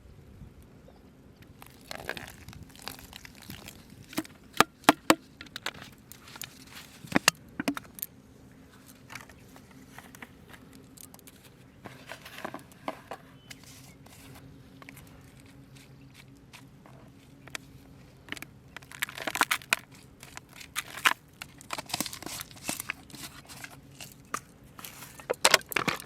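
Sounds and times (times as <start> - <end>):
crinkling handling noise: 1.4 - 26.0
sharp clicks and knocks: 7.1 - 8.1.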